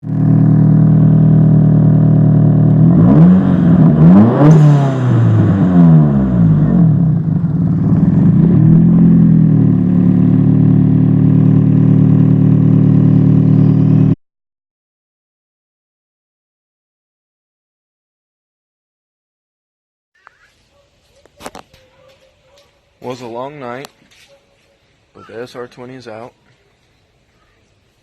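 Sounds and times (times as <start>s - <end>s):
car engine idling and revving: 0.0s - 14.2s.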